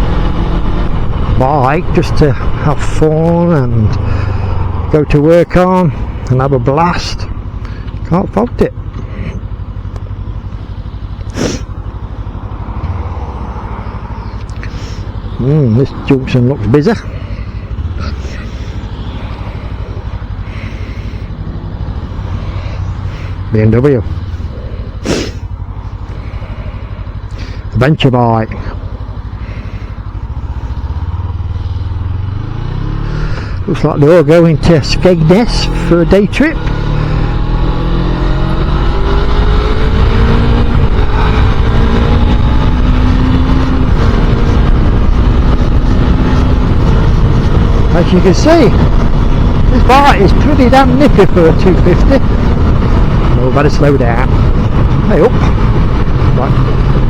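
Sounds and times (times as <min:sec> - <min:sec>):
motorcycle engine running: 0:00.0 - 0:57.0
wind rush on microphone: 0:36.4 - 0:57.0.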